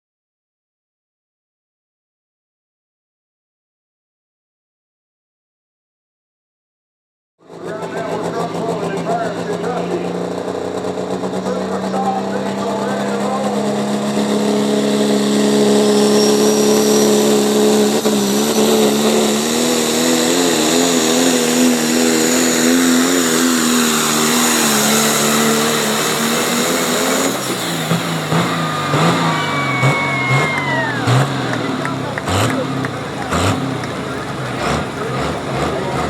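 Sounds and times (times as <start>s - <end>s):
engine at full throttle: 7.4s - 36.0s
high whistle winding down: 14.2s - 32.5s.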